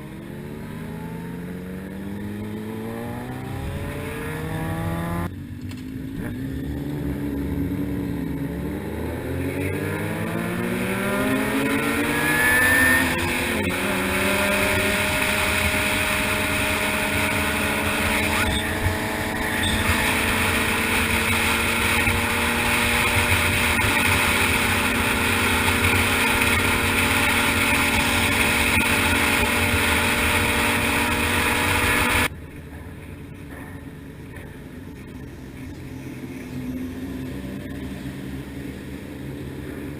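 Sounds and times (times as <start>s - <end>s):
motorcycle engine revving high: 0.0s - 32.3s.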